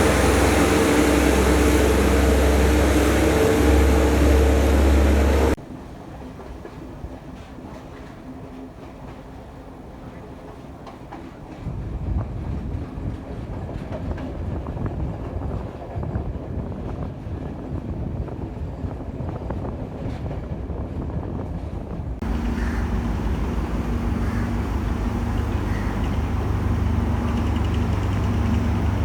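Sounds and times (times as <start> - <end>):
steady hum: 0.0 - 5.6, 22.2 - 29.0
train rumbling on rails: 0.0 - 29.0.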